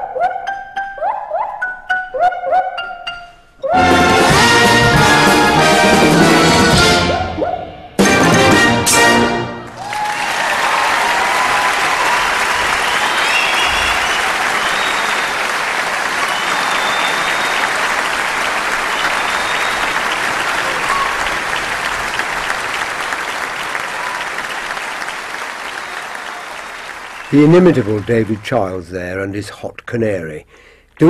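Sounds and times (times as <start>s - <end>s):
brass band chord: 3.7s - 9.8s
audience applauding: 3.8s - 6.9s, 8.5s - 29.0s.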